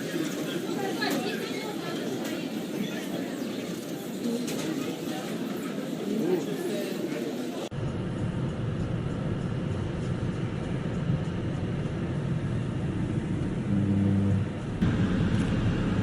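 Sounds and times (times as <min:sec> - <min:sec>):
short low tone: 0:13.6 - 0:14.6.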